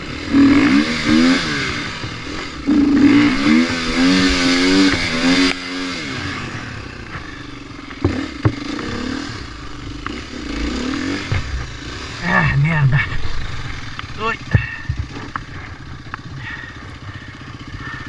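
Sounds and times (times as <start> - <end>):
dirt bike engine revving: 0.0 - 18.0
sharp knocks: 7.9 - 8.8, 11.2 - 11.8.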